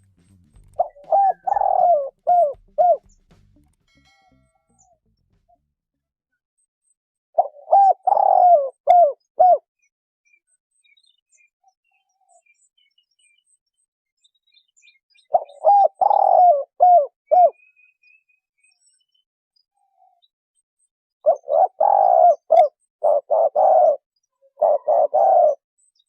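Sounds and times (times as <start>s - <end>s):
small birds chirping: 0.0s - 3.4s, 6.6s - 26.0s
dove cooing: 0.6s - 3.1s, 7.4s - 9.7s, 15.3s - 17.6s, 21.2s - 25.6s.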